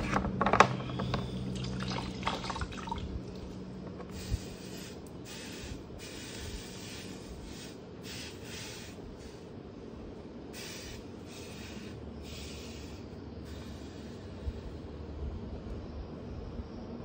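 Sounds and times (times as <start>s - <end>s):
low steady hum: 0.0s - 17.0s
short hissing bursts: 4.1s - 15.2s.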